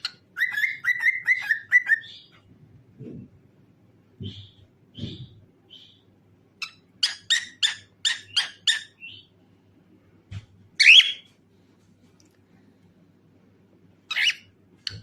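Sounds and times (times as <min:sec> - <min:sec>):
cockatiel chirps: 0:00.0 - 0:02.4, 0:06.6 - 0:09.3, 0:10.8 - 0:11.3, 0:14.1 - 0:15.0.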